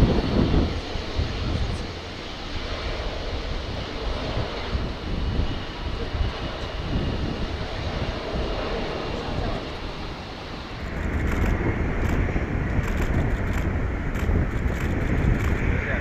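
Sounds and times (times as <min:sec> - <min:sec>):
jet engine high whine: 0:00.0 - 0:16.0
jet engine rumble: 0:00.0 - 0:16.0
wind on microphone: 0:00.0 - 0:16.0.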